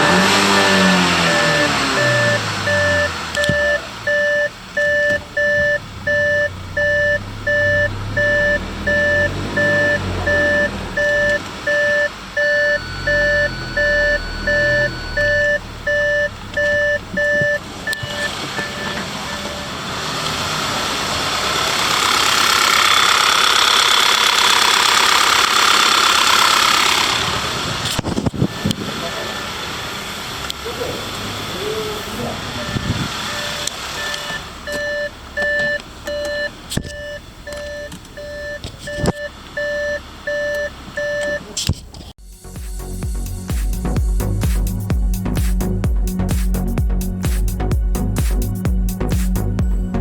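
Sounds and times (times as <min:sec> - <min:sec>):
in-car warning chime beeping: 0:00.0 - 0:20.0, 0:32.6 - 0:41.5
car engine running: 0:00.0 - 0:50.0.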